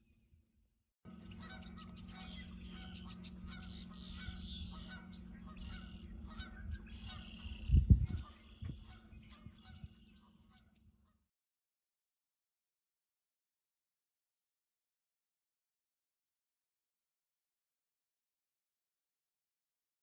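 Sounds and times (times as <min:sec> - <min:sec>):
geese honking: 0:01.1 - 0:10.8
constant low hum: 0:01.1 - 0:11.2.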